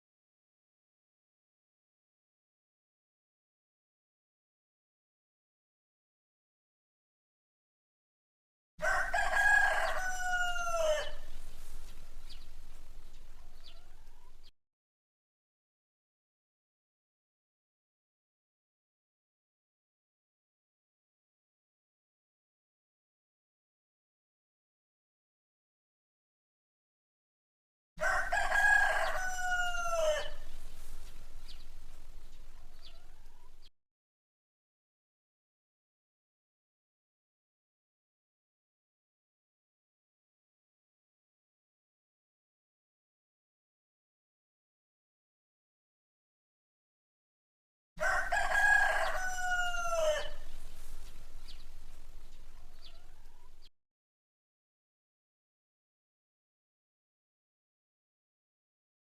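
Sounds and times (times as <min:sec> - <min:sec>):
rooster crowing: 0:08.8 - 0:14.5, 0:28.0 - 0:33.7, 0:48.0 - 0:53.7
faint hiss: 0:11.2 - 0:14.5, 0:30.3 - 0:33.6, 0:50.4 - 0:53.6.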